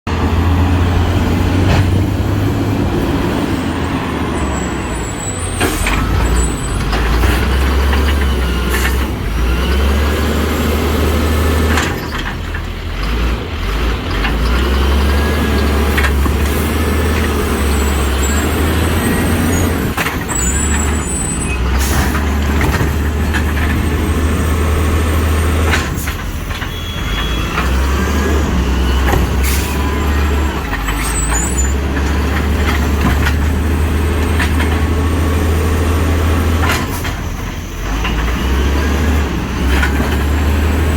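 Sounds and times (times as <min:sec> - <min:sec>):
garbage truck engine running: 0:00.0 - 0:40.9
recyclables knocking and banging: 0:01.2 - 0:03.2, 0:15.4 - 0:40.9
high squeals: 0:03.6 - 0:06.9, 0:17.4 - 0:22.2, 0:26.2 - 0:32.4.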